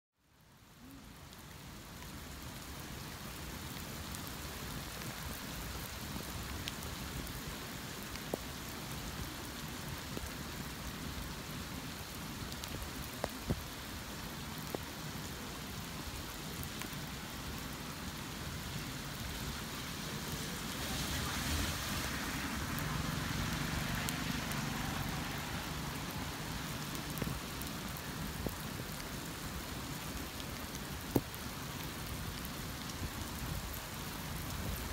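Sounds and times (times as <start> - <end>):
heavy rain splashing: 0.6 - 34.9
raindrops ticking: 22.6 - 34.9.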